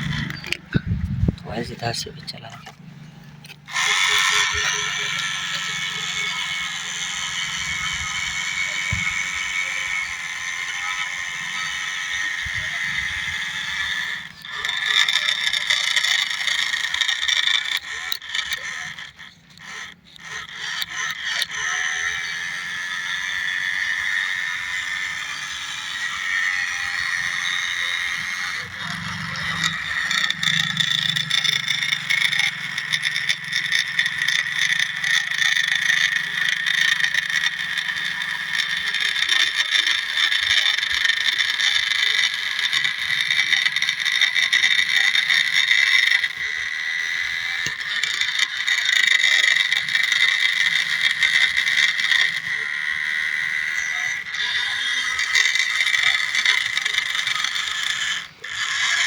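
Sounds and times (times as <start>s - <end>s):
scraping and rattling: 0.0s - 59.0s
toy tractor motor whining: 0.0s - 59.0s.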